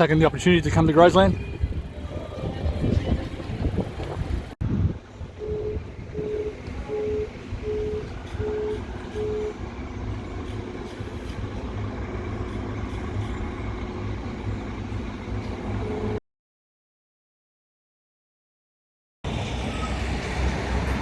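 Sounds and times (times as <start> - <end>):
low engine rumble: 0.0 - 16.2
reversing beeper: 5.4 - 9.6.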